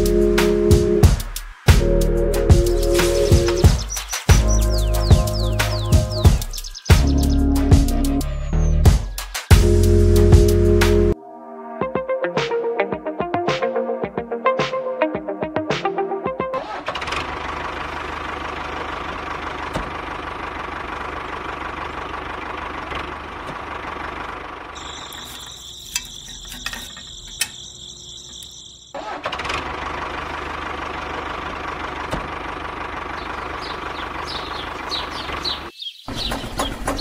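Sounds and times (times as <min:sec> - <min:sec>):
engine knocking idle: 0:17.1 - 0:26.8, 0:29.5 - 0:37.0
clicks: 0:24.8 - 0:28.6
high steady whine: 0:24.8 - 0:28.9.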